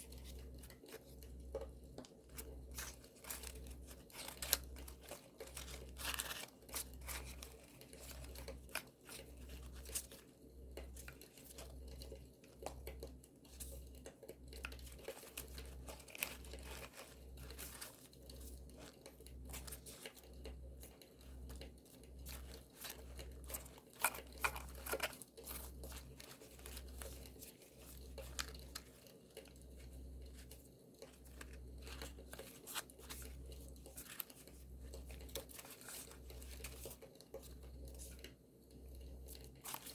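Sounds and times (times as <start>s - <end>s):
paper rustling and tearing: 2.4s - 10.1s, 15.0s - 20.2s.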